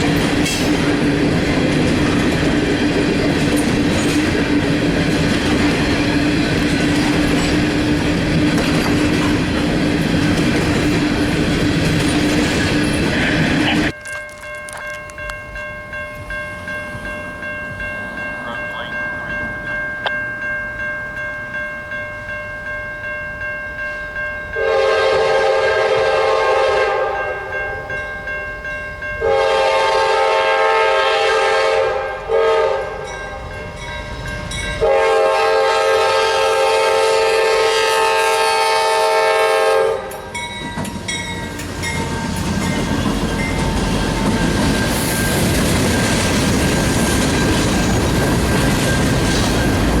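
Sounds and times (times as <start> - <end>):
moving train running noise: 0.0 - 14.0, 24.7 - 50.0
train air horn blasts: 24.6 - 27.8, 29.2 - 33.1, 34.8 - 40.3.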